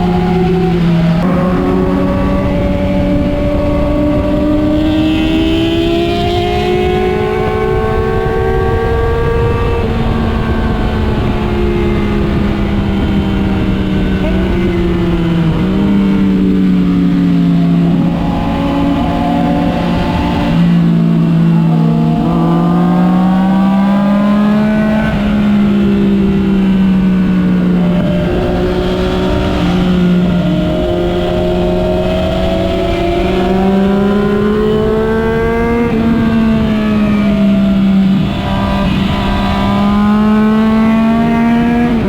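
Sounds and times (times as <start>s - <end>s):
motorcycle engine accelerating: 0.0s - 42.0s
wind and road noise: 0.0s - 42.0s.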